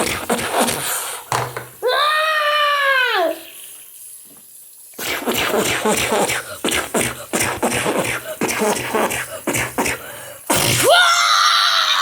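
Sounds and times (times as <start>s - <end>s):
child high-pitched squeal: 1.8s - 3.6s
child making vocal noises: 1.8s - 3.6s.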